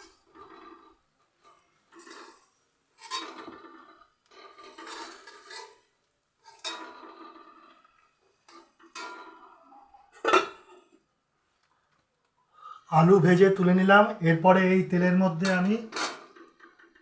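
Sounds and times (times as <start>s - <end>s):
metal utensil scraping a pan: 0.0s - 10.8s, 15.0s - 17.0s.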